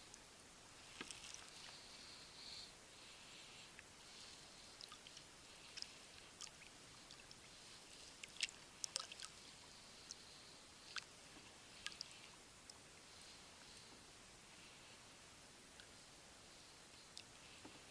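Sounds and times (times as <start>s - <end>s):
faint sharp clicks: 17.1s - 17.8s.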